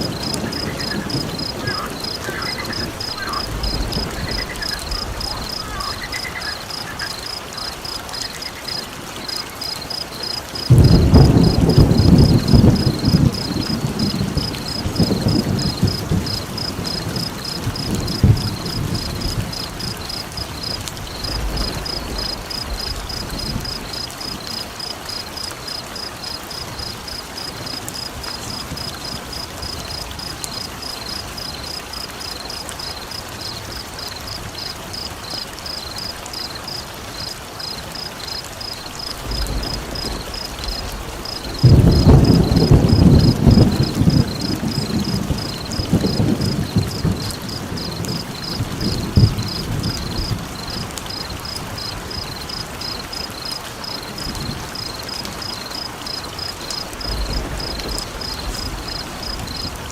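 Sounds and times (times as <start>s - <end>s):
rolling thunder: 0.0s - 8.3s, 9.2s - 24.6s, 38.8s - 53.4s, 56.1s - 59.9s
steady rain: 0.0s - 59.9s.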